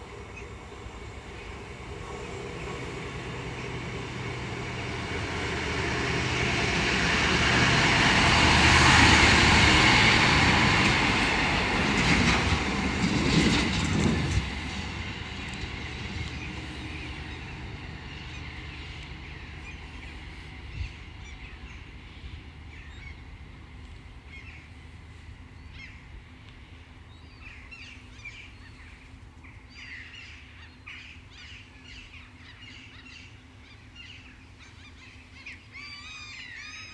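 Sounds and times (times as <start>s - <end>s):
train passing at speed: 0.0s - 36.9s
wheels clattering over rail joints: 0.4s - 18.2s
birds chirping: 15.0s - 23.4s.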